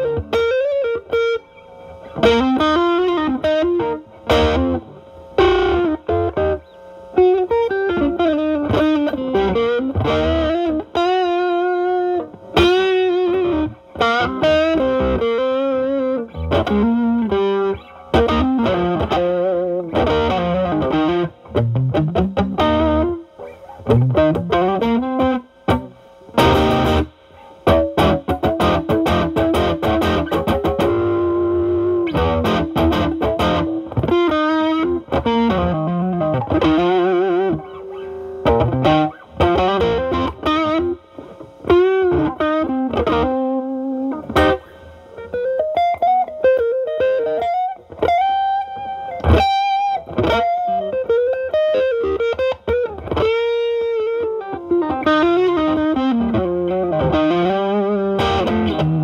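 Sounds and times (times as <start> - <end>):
overdriven electric guitar: 0.0 - 59.0.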